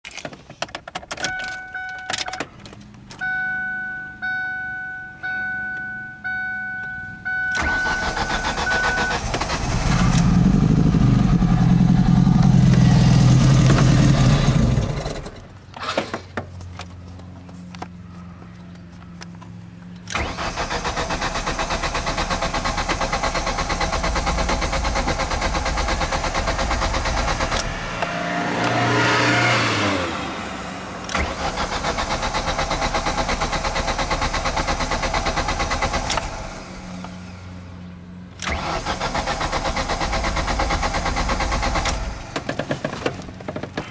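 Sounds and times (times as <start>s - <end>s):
dashboard warning chime: 1.2s - 2.5s, 3.2s - 9.3s
starter cranking engine: 7.6s - 11.7s, 20.1s - 27.8s, 31.1s - 36.6s, 38.4s - 43.8s.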